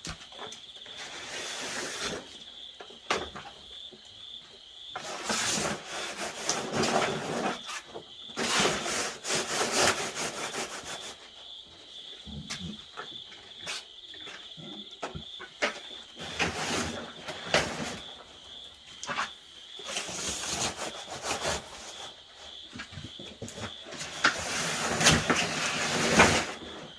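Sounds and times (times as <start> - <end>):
insects trilling: 0.0 - 26.9
rough scraping: 5.0 - 11.1, 16.2 - 18.1, 19.1 - 22.1, 24.0 - 26.9.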